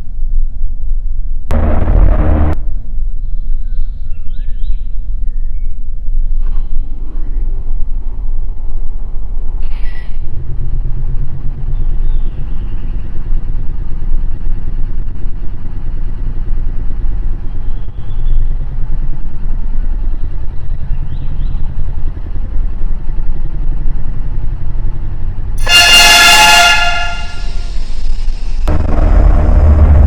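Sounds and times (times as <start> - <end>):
light-rail train rumbling: 0.1 - 30.0
high-pitched wheel squeal: 25.6 - 28.7.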